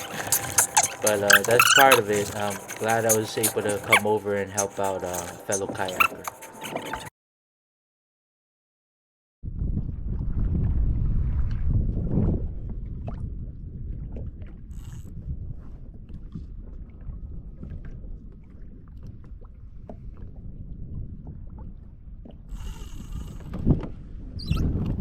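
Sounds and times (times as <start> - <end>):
wind rumbling on microphone: 9.4 - 25.0.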